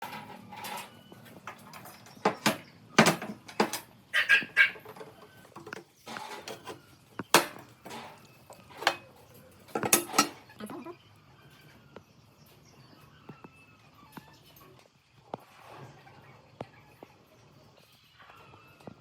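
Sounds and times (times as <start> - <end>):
metal knocks and clinks: 9.7 - 10.4.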